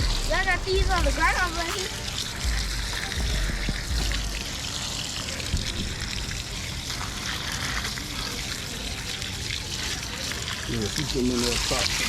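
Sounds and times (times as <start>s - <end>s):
water pouring into container: 0.0s - 12.0s.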